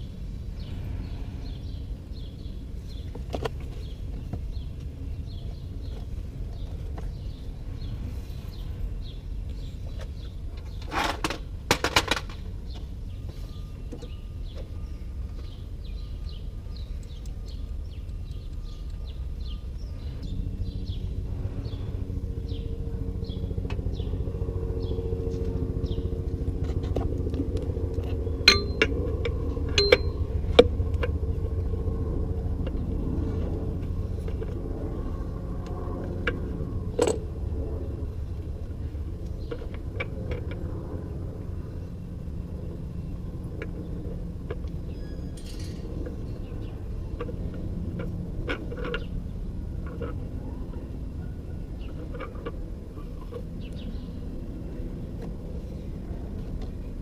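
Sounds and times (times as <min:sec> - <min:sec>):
low rumble: 0:00.0 - 0:57.0
faint bird chirps: 0:12.7 - 0:21.1
sharp metallic clinks: 0:28.4 - 0:29.0, 0:29.7 - 0:30.3.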